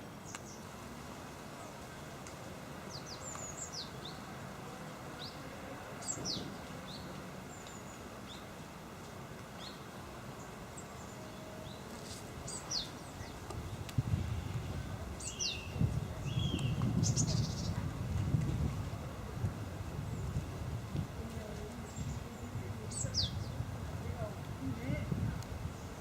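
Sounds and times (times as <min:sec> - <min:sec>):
small birds chirping: 0:00.0 - 0:00.7, 0:02.8 - 0:04.4, 0:05.1 - 0:08.6, 0:09.4 - 0:13.9, 0:15.2 - 0:17.9, 0:21.4 - 0:26.0
outdoor background hum: 0:00.0 - 0:26.0.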